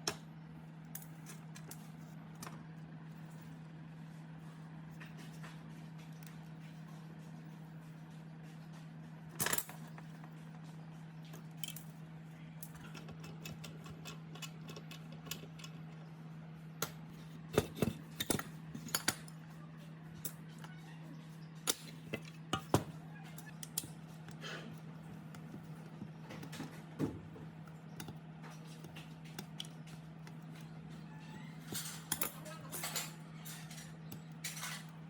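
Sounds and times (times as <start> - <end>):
steady low hum: 0.0 - 35.0
small metal parts clicking: 12.6 - 15.8.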